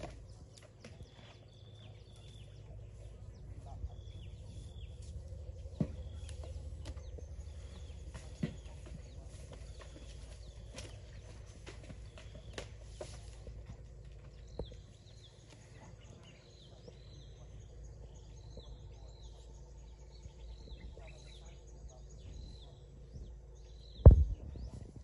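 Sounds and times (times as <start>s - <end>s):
loud low thump: 24.0s - 25.0s.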